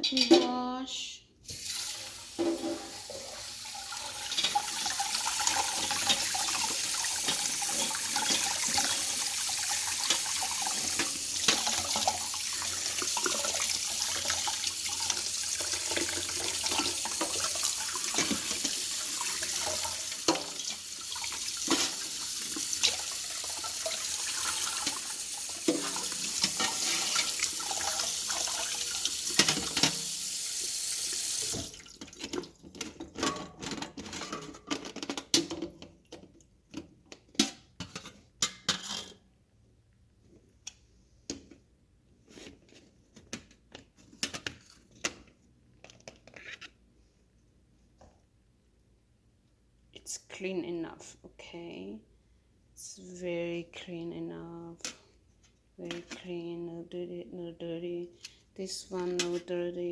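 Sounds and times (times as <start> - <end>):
tap water running: 1.5 - 33.0.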